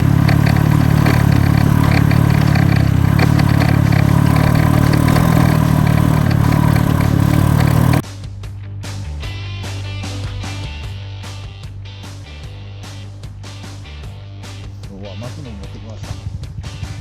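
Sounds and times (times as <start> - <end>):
light clatter: 0.0 - 8.0
small motorcycle engine running: 0.0 - 8.0.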